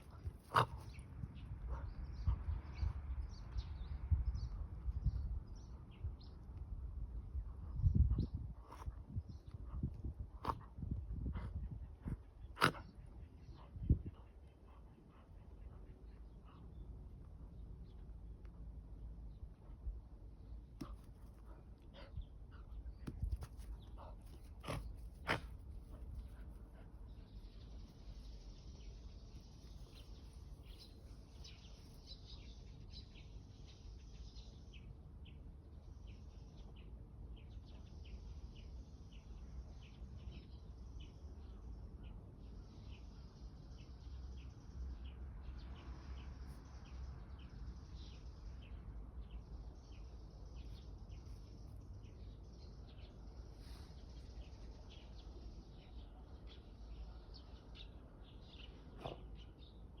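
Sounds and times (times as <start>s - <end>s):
faint bird chirping: 19.2s - 60.0s.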